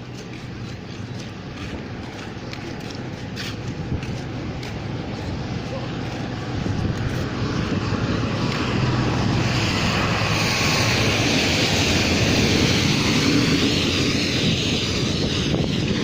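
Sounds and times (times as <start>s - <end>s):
rushing wind noise: 0.0s - 16.0s
vehicle rumble: 0.0s - 16.0s.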